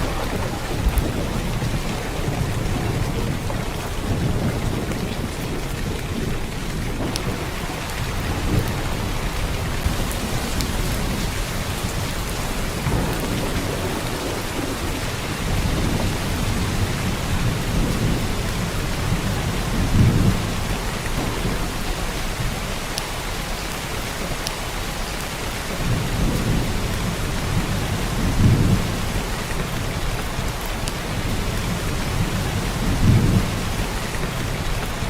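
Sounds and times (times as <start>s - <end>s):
heavy rain hiss: 0.0s - 35.0s.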